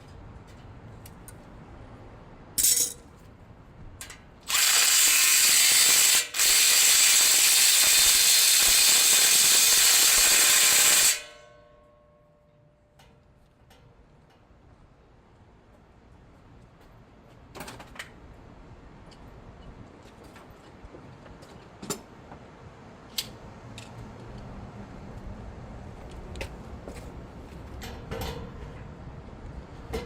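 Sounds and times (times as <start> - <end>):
power drill ratcheting rattle: 4.5 - 11.2.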